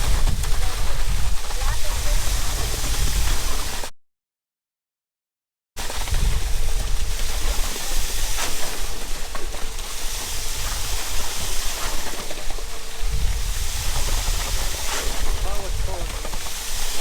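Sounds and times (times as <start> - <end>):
steady rushing noise: 6.0 - 17.0.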